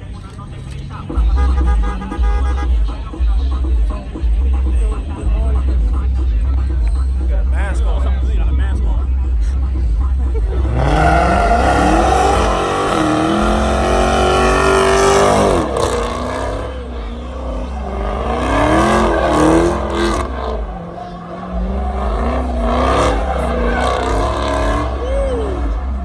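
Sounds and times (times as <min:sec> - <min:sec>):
car engine revving hard: 0:07.6 - 0:26.0.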